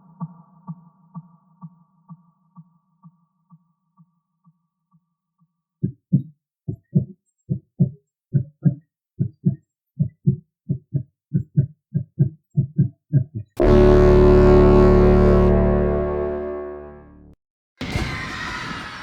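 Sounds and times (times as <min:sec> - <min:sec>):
heartbeat thumps: 0:05.8 - 0:13.7.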